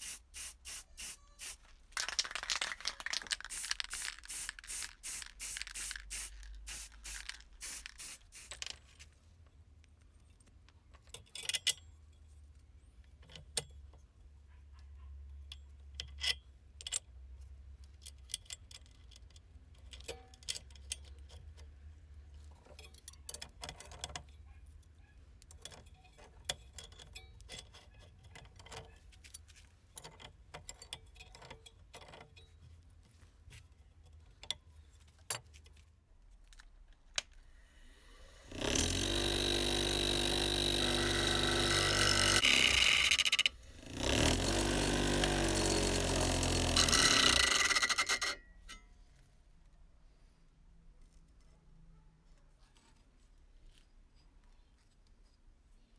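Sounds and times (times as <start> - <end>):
power tool motor running: 0.0 - 8.8, 37.6 - 48.4
small metal parts clinking: 0.0 - 9.0, 37.8 - 48.4.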